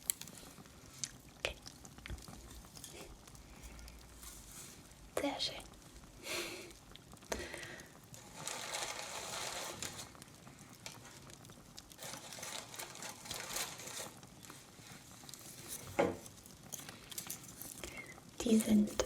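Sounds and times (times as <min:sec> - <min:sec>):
fireplace crackling: 0:00.0 - 0:19.0
rustling of handled decorations: 0:02.2 - 0:05.5, 0:07.4 - 0:19.0.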